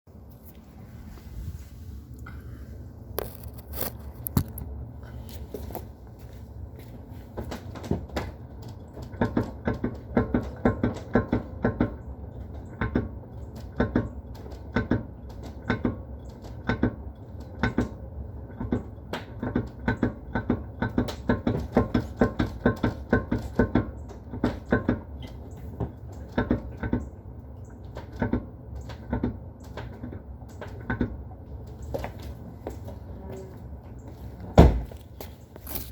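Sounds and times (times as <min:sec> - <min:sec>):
low rumble: 0:00.1 - 0:06.8.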